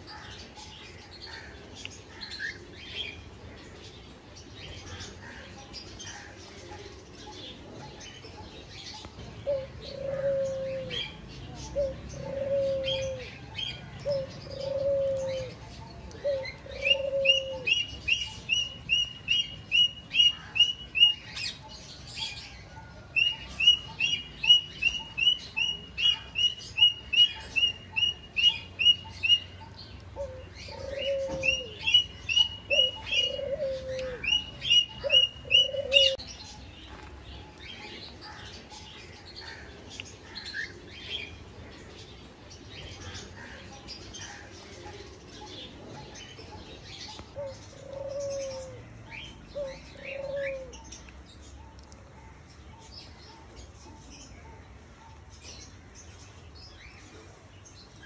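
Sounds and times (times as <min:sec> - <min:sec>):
birds chirping: 0:00.0 - 0:58.0
bird cooing: 0:06.2 - 0:36.5, 0:43.1 - 0:50.9.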